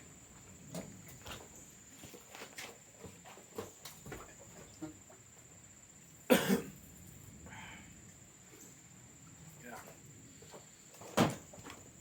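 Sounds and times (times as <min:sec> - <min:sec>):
person coughing: 0:06.3 - 0:06.7.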